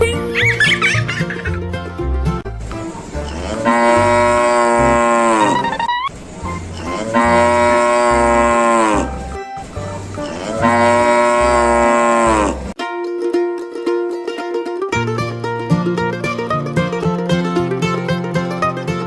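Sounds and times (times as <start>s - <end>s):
cow mooing: 3.2s - 5.8s, 6.8s - 9.2s, 10.2s - 12.8s.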